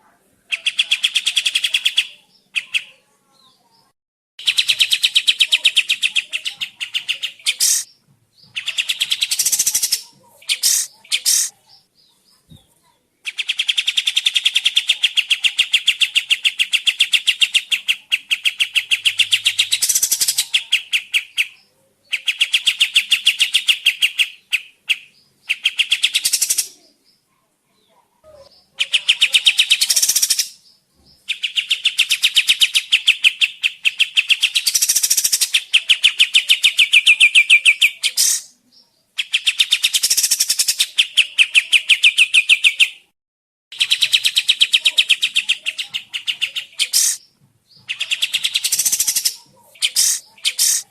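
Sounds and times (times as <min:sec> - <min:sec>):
songbird chattering trills: 0:00.5 - 0:12.5, 0:13.2 - 0:27.2, 0:28.4 - 0:43.1, 0:43.7 - 0:50.9.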